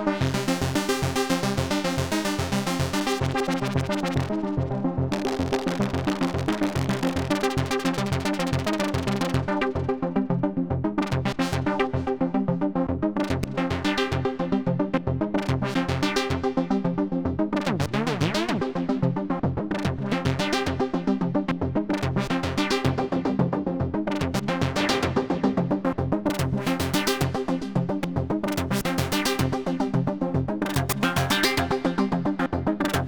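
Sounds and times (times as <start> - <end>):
synthesizer sequenced notes: 28.4 - 33.0.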